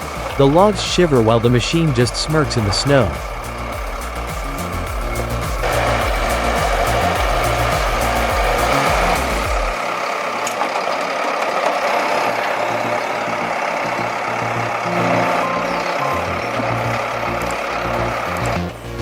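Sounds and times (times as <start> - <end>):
music with pulsing bass: 0.0 - 9.8, 13.3 - 19.0
machinery noise: 0.0 - 19.0
truck engine running: 0.0 - 19.0
short beeps: 14.9 - 17.0.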